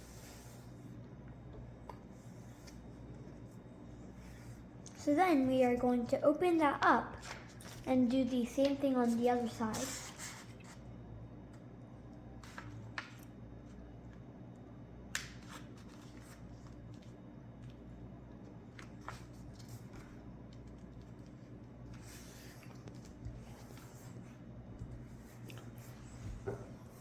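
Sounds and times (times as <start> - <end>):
paper rustling and crackling: 15.2 - 17.8, 18.6 - 24.3.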